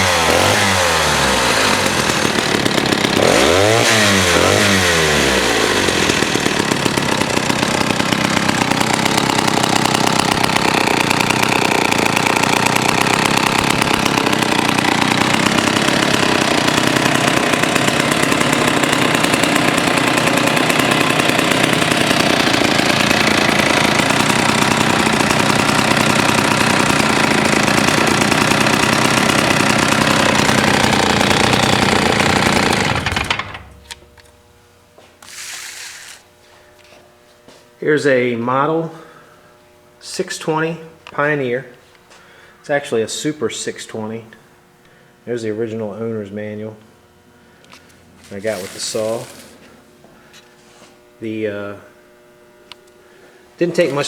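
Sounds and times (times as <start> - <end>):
chainsaw revving and idling: 0.0 - 34.4, 35.2 - 36.3, 40.0 - 41.5, 47.6 - 49.8, 53.6 - 54.0.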